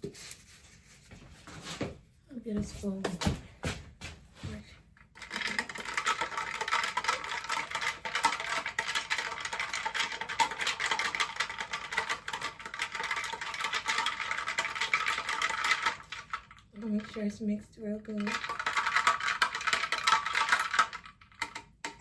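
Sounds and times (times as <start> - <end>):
spoon stirring in a glass: 5.2 - 17.3, 18.1 - 22.0.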